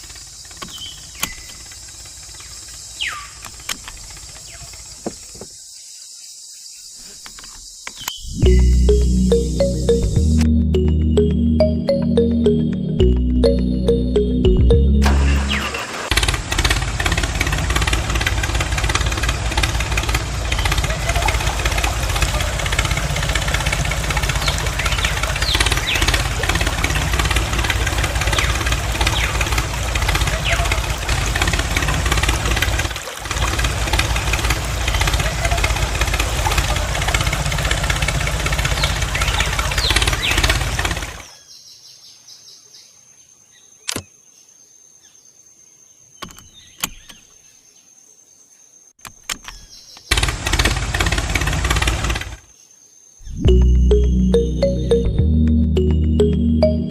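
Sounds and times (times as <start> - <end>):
small engine idling: 0.0 - 5.3, 15.0 - 41.4, 50.1 - 52.5
short high chirps: 8.2 - 15.8
small motor running: 16.1 - 41.3.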